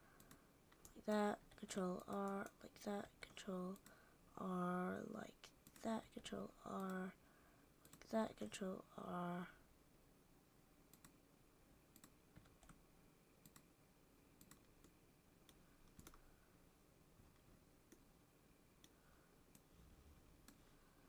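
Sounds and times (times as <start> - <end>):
computer keyboard and mouse clicks: 10.9 - 11.2, 11.9 - 12.8, 13.4 - 13.7, 14.4 - 16.2.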